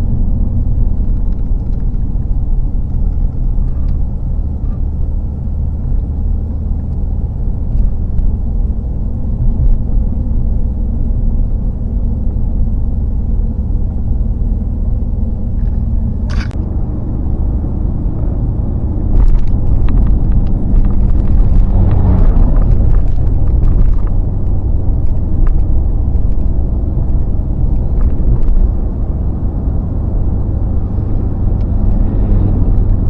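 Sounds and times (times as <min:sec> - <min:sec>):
vehicle engine and road rumble: 0:00.0 - 0:33.0
sharp click: 0:15.6 - 0:16.6.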